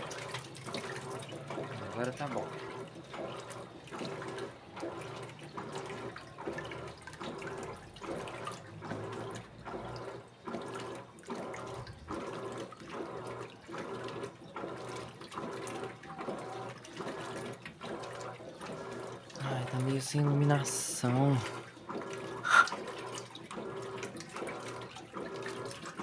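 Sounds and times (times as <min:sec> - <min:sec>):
washing machine agitator swishing: 0:00.0 - 0:26.0
water sloshing: 0:19.3 - 0:23.0.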